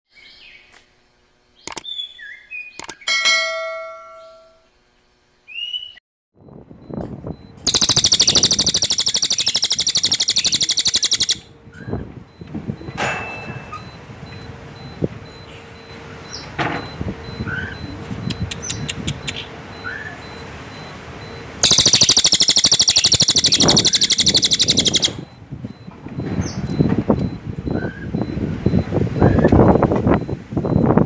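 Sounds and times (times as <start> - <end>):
bird chirps: 1.6 - 3.1, 7.6 - 12.0, 17.4 - 20.4, 21.6 - 25.3
bird buzzing trill: 7.6 - 11.9, 21.6 - 25.2.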